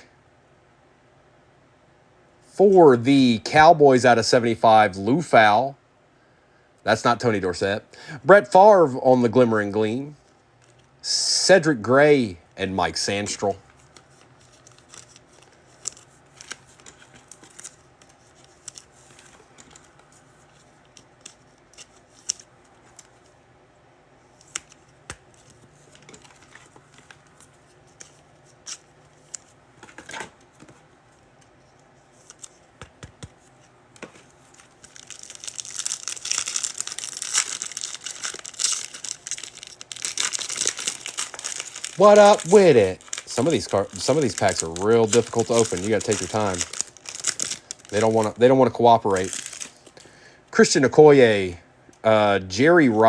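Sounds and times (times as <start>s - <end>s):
card handling clicks and taps: 32.4s - 33.4s
foil wrapper tearing and crinkling: 34.8s - 49.9s.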